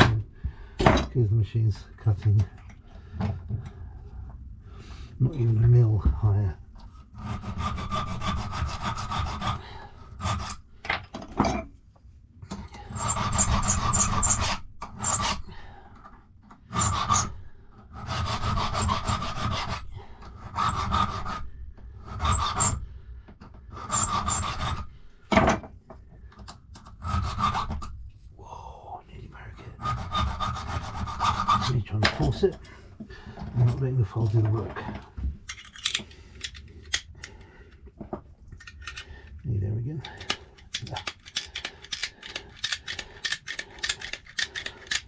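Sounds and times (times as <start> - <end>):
hand file rasping on metal: 7.0 - 10.6, 12.5 - 15.6, 16.6 - 22.9, 23.7 - 25.0, 26.8 - 27.9, 29.7 - 32.8, 40.0 - 45.0.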